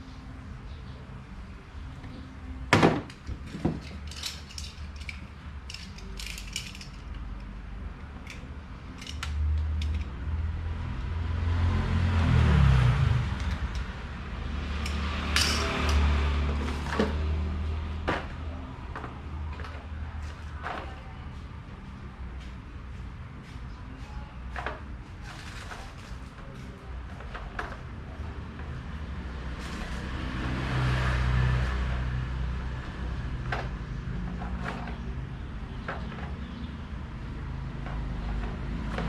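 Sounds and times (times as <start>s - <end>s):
fan parts clicking and knocking: 2.0s - 10.3s, 13.3s - 21.1s, 24.1s - 39.0s.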